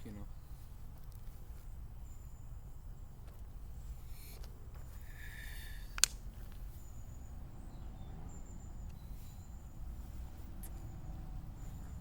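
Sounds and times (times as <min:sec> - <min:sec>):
steady low rumble: 0:00.0 - 0:12.0
sharp click: 0:05.9 - 0:06.2
faint high-pitched chirping: 0:06.6 - 0:12.0.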